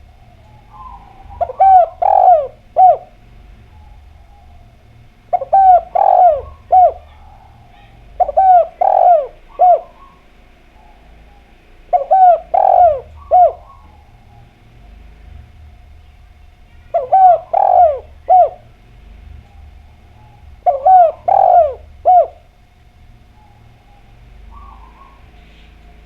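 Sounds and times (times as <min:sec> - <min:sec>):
dove cooing: 0:00.0 - 0:26.0.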